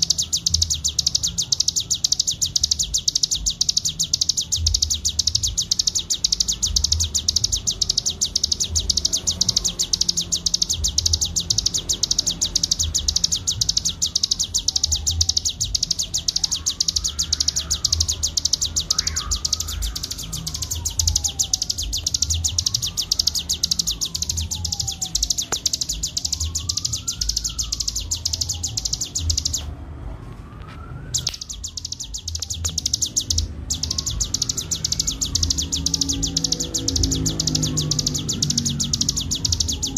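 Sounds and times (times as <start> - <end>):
faint rising and falling whistle: 0.0 - 29.7.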